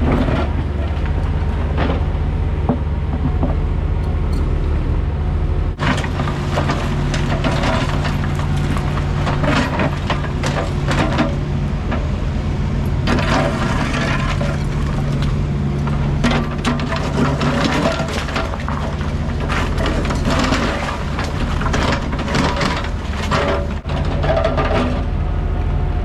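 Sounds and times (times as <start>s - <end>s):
diesel excavator running: 0.0s - 26.0s
debris cracking and crunching: 3.6s - 11.5s, 13.0s - 25.2s.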